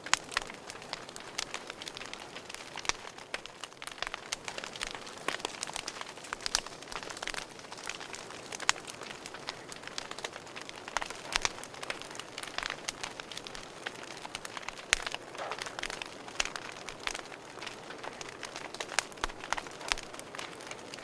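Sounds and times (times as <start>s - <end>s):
wood fire pops and snaps: 0.0s - 21.0s
fire hissing: 0.3s - 20.9s.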